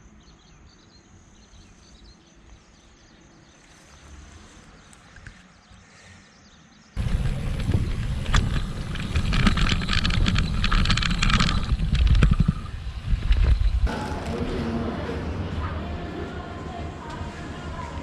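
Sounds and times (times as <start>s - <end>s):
sharp rattles and clicks: 7.0s - 13.9s
wind buffeting microphone: 7.0s - 14.6s.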